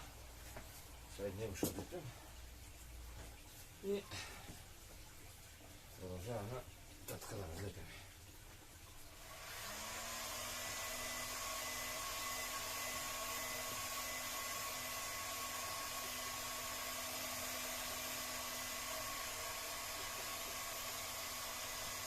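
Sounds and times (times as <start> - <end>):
heat gun blowing air: 9.2 - 22.0.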